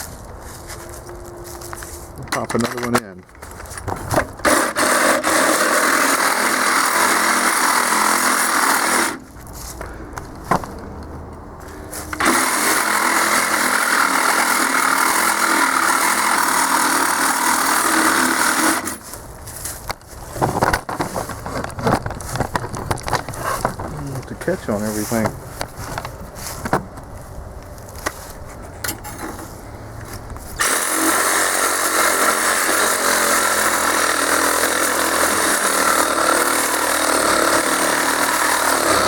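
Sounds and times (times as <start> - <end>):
reciprocating saw cutting steel: 4.4 - 9.2, 12.1 - 19.0, 30.6 - 39.0.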